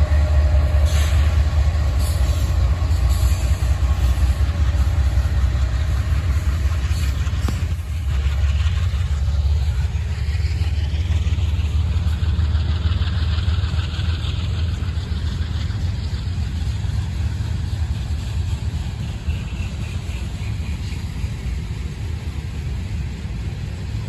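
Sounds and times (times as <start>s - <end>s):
freight train rumble: 0.0s - 24.0s
wheels hissing on rail: 0.0s - 24.0s.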